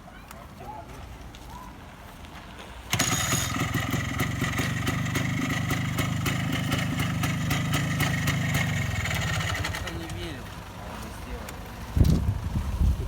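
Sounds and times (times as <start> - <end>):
two-stroke engine running: 2.9 - 11.4.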